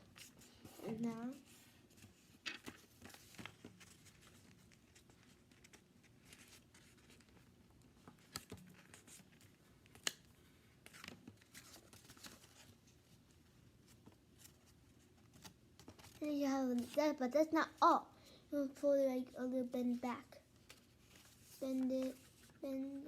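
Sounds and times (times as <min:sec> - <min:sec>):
paper rustling and crinkling: 0:00.0 - 0:17.2, 0:20.5 - 0:23.0
paper snapping crisply: 0:09.9 - 0:11.1.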